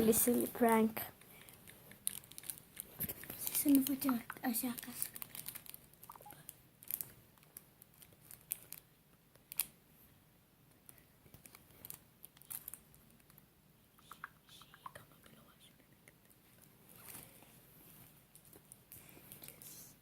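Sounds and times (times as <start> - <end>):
faint irregular clicks and taps: 2.9 - 5.2.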